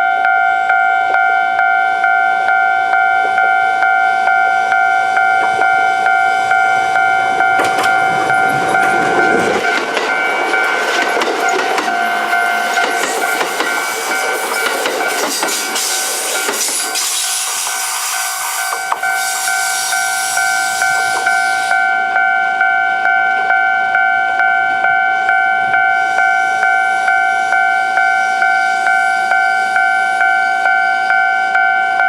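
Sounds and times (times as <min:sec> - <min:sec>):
electronic crossing bell dinging: 0:00.0 - 0:32.0
train wheel and track noise: 0:01.0 - 0:32.0.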